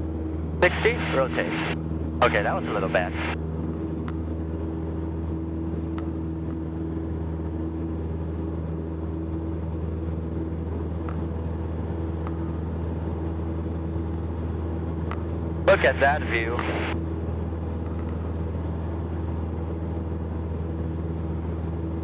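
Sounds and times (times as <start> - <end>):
airplane engine droning: 0.0 - 22.0.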